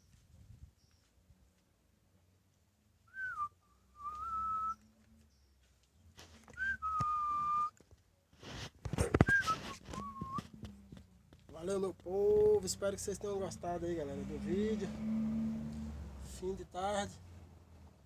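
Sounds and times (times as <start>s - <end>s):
person whistling: 3.2s - 4.8s, 6.5s - 7.8s, 9.2s - 10.5s.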